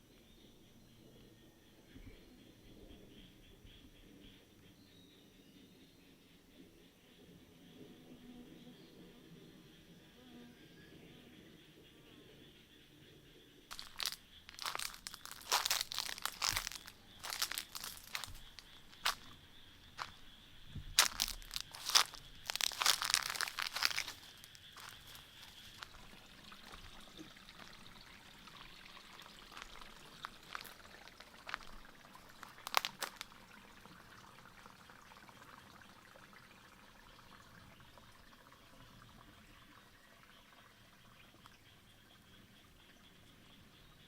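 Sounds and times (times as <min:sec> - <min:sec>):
clicks and rustles: 0:13.7 - 0:19.3, 0:21.0 - 0:25.9, 0:32.4 - 0:33.2
faint trickling water: 0:13.7 - 0:43.8.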